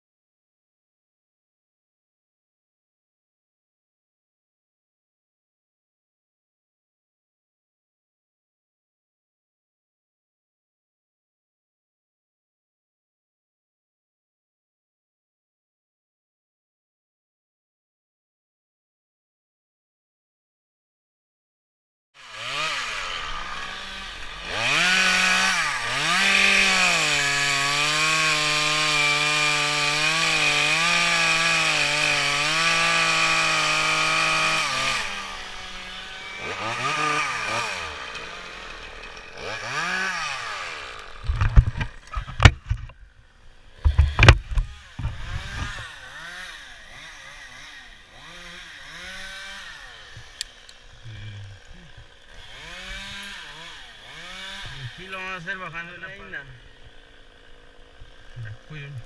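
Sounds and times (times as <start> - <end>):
chainsaw revving: 22.2 - 59.0
sharp knocks: 43.8 - 45.8.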